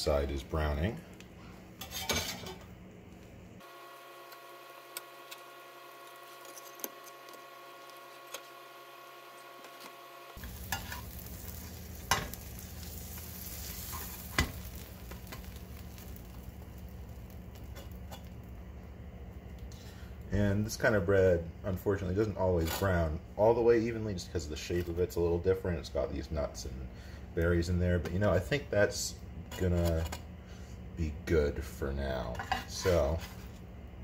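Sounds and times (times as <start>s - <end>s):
sandwich sizzling in a pan: 3.6s - 18.6s.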